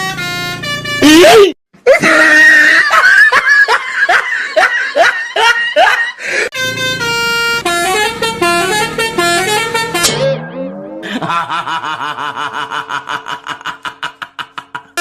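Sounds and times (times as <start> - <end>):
multi-note horn tune: 0.0 - 1.3, 6.5 - 11.0.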